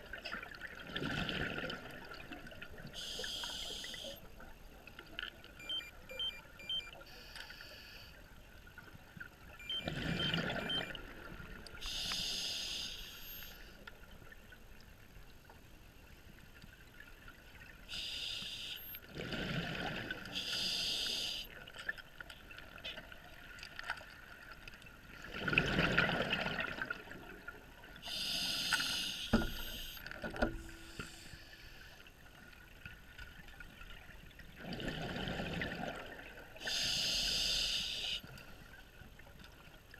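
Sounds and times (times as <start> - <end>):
regulator inhalation hiss: 3.0 - 4.2, 11.9 - 13.7, 17.9 - 19.0, 20.4 - 21.5, 28.1 - 30.0, 36.6 - 38.2
exhaled bubbles rushing: 25.2 - 27.2, 34.6 - 36.3.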